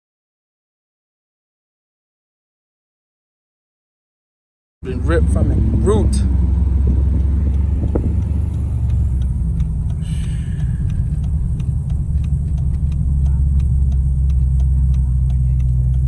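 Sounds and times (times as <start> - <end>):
car engine and road noise: 4.8 - 16.0
faint light ticks: 6.8 - 16.0.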